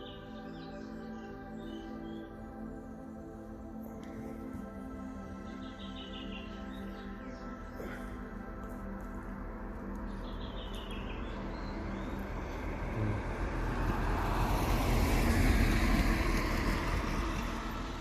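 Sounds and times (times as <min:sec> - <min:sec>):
road vehicle passing by: 0:10.4 - 0:18.0.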